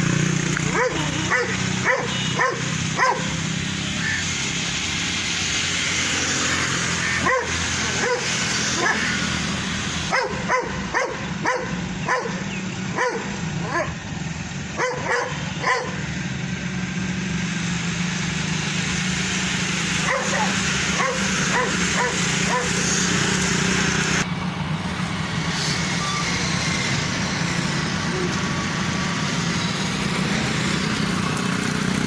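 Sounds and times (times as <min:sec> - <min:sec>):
dogs barking: 0:00.4 - 0:04.3, 0:06.8 - 0:14.1, 0:14.7 - 0:16.2, 0:19.8 - 0:23.2.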